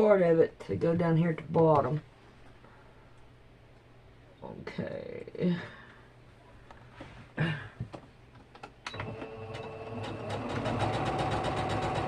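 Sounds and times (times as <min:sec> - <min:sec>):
sewing machine stitching: 0:08.9 - 0:12.0.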